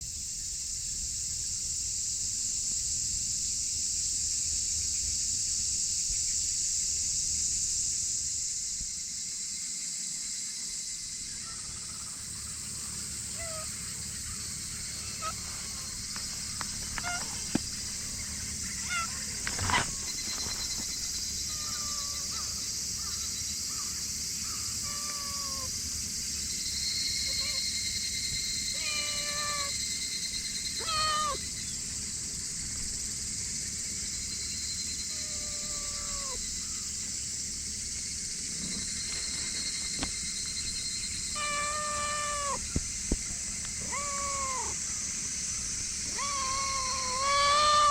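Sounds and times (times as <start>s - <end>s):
high-pitched hiss: 0.0s - 47.9s
cat meowing: 17.0s - 17.4s, 21.5s - 22.3s, 24.8s - 25.7s, 28.8s - 29.7s, 30.8s - 31.4s, 35.1s - 36.4s, 41.4s - 42.6s, 43.8s - 44.8s, 46.1s - 47.9s
brief rustle: 19.4s - 21.2s.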